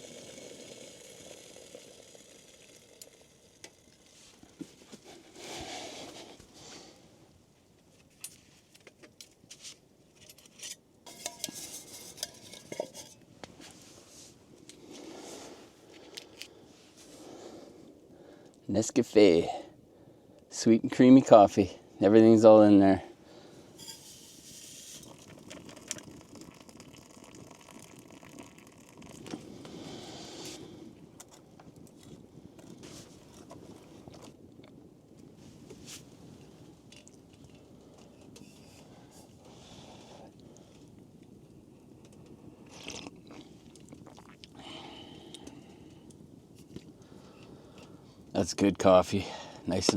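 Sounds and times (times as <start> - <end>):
water pouring into a cup: 0.0 - 4.3, 24.7 - 30.2
metal cookware clinking: 10.6 - 13.2, 23.8 - 24.2.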